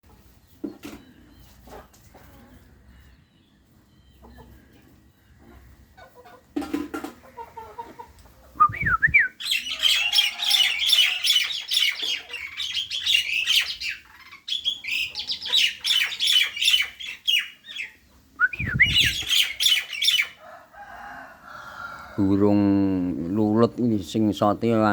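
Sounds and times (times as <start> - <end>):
starling singing: 8.6 - 20.4.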